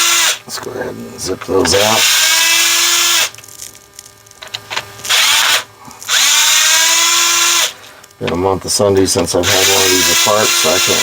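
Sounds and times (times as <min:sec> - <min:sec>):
power screwdriver motor whining: 0:00.0 - 0:00.4, 0:01.7 - 0:03.3, 0:05.0 - 0:07.8, 0:09.4 - 0:11.0.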